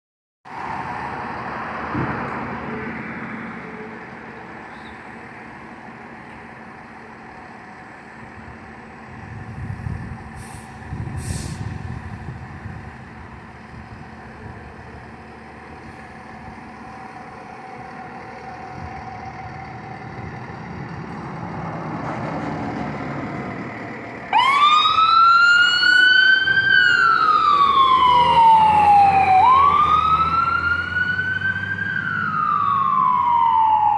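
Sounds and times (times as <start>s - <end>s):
road noise: 0.4s - 33.9s
fire truck engine rumble: 0.5s - 33.9s
short hisses: 10.4s - 11.8s
siren wailing: 24.3s - 33.9s.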